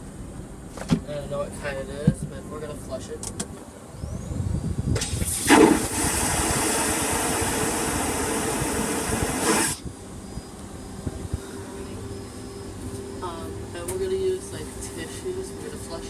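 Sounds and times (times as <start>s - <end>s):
vacuum toilet flushing whoosh: 5.0s - 9.8s.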